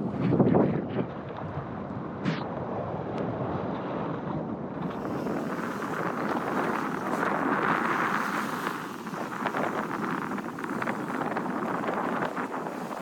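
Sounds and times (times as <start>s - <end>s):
wind buffeting microphone: 0.0s - 13.0s
crackles: 4.8s - 13.0s.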